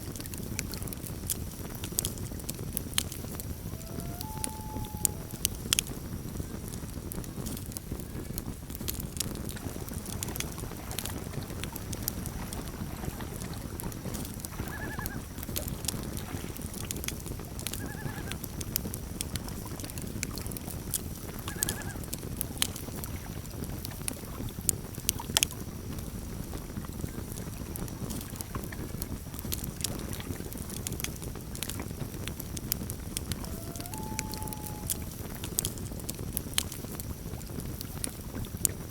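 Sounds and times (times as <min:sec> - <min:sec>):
campfire crackling and popping: 0:00.0 - 0:38.9
short high calls: 0:03.6 - 0:05.7, 0:33.4 - 0:35.4.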